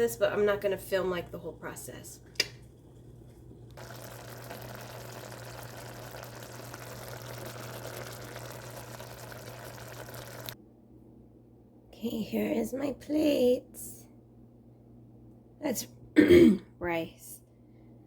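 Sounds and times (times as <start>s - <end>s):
low steady hum: 0.0s - 18.0s
food sizzling in frying pan: 2.2s - 10.6s.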